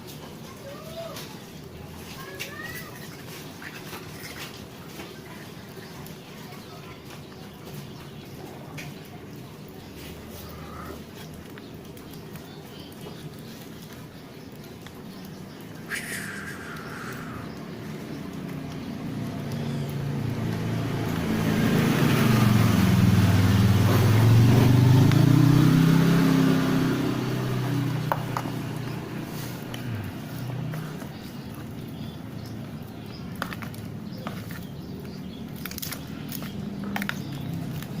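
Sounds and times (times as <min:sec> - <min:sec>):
vehicle engine passing by: 0:15.8 - 0:38.0.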